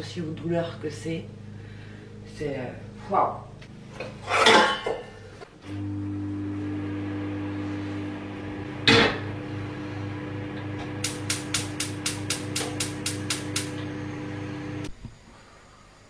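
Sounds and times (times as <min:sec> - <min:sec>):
kitchen appliance humming: 0:05.6 - 0:15.0.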